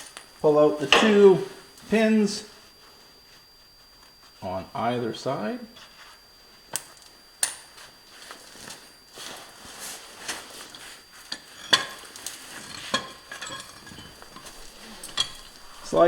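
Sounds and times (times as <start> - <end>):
metal scraping and handling: 10.3 - 16.0
metal pins clinking and knocking: 11.3 - 16.0.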